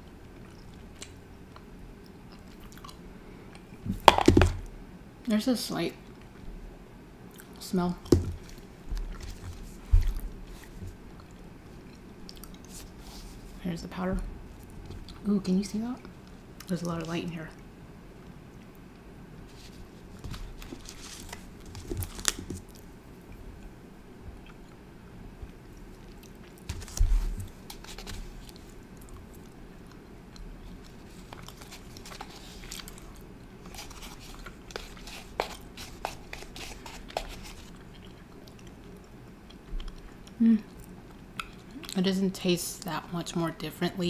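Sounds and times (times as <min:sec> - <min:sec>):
chewing soft candy: 0:00.0 - 0:03.7, 0:07.3 - 0:13.0, 0:25.4 - 0:26.7, 0:27.5 - 0:42.0.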